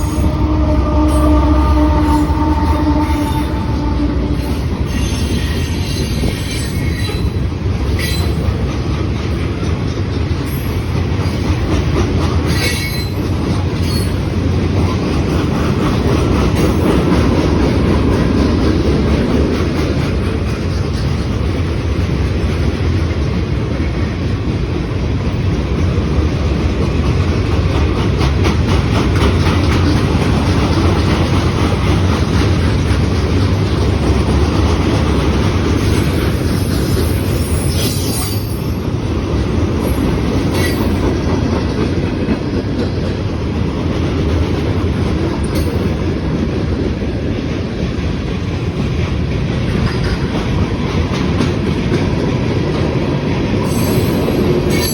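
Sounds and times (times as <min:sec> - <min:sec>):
freight train rumbling past: 0:00.0 - 0:54.9
wheels clicking on rails: 0:04.7 - 0:54.9.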